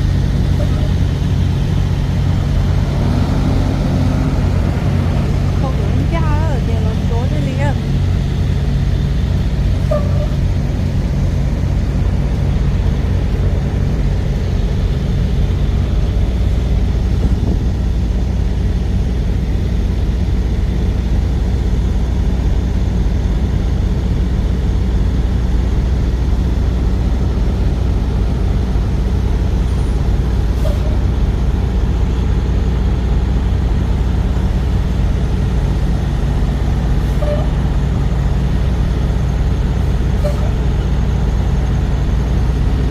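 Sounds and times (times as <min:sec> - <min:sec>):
road noise: 0:00.0 - 0:42.9
truck engine drone: 0:00.0 - 0:42.9.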